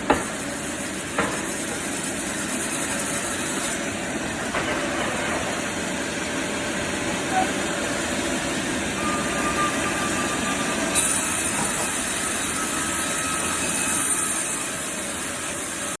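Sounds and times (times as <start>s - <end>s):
high-pitched whine: 7.2s - 16.0s.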